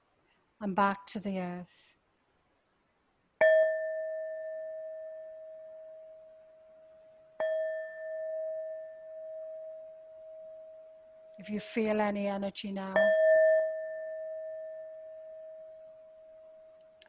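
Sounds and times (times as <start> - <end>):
singing bowl ringing: 3.4 - 11.9, 12.9 - 17.0.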